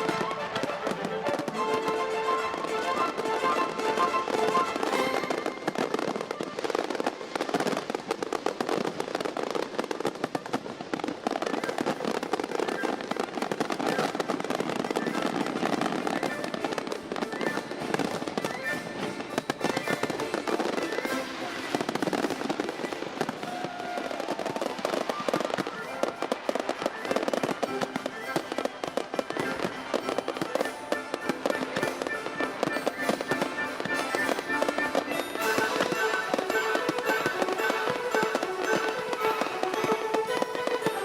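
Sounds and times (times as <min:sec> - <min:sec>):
music: 0:00.0 - 0:06.2, 0:15.2 - 0:22.7, 0:27.2 - 0:41.0
fireworks crackling and popping: 0:00.0 - 0:41.0.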